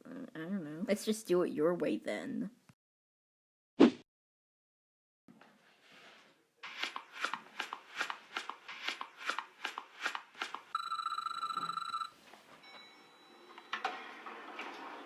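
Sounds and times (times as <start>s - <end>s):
electronic buzzing tone: 10.8s - 12.1s.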